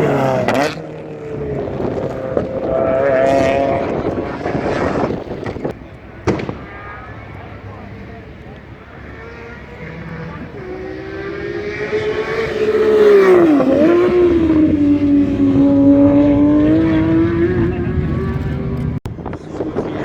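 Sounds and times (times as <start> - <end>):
car engine on track: 0.0 - 20.0.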